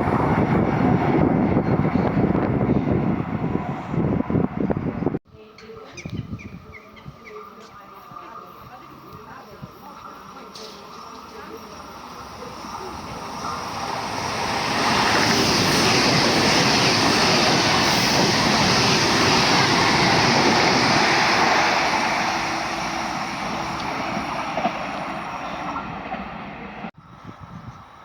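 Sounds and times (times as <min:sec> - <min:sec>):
train wheels on rails: 0:07.6 - 0:26.9.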